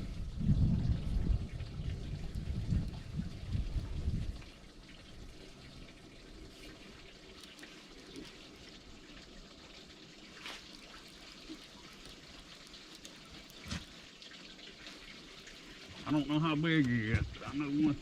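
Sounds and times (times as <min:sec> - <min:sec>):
water lapping and trickling: 0:00.0 - 0:18.0
soft splashes: 0:01.9 - 0:16.2.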